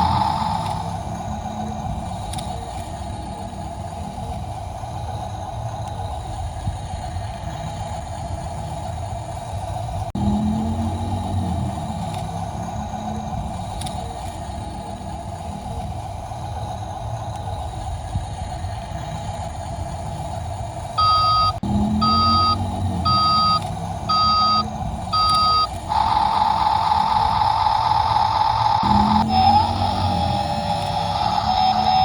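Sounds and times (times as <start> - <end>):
steady buzz: 0.0 - 8.8, 9.4 - 32.0
toy truck motor hum: 0.0 - 32.0
reversing beeps: 21.0 - 28.2.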